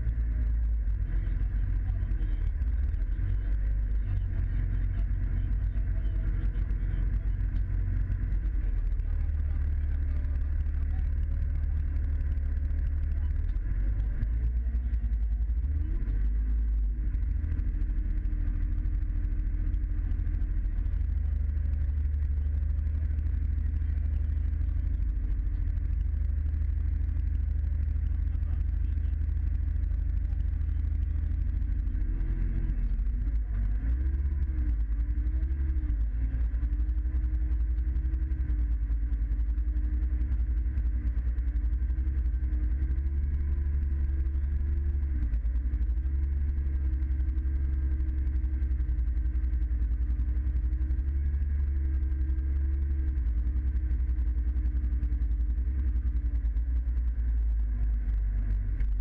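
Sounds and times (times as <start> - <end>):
truck diesel engine running: 0.0 - 59.0.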